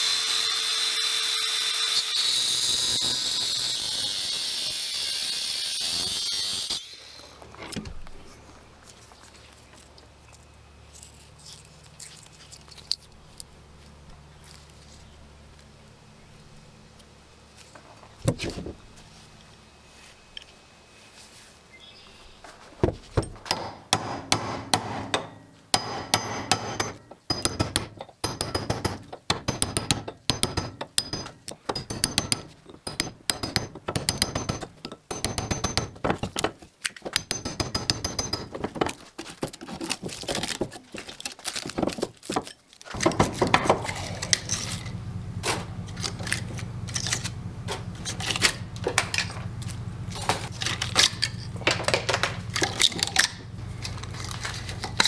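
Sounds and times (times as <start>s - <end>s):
hand tools knocking on metal: 22.8s - 39.7s, 42.9s - 55.0s
steady low hum: 43.0s - 55.0s.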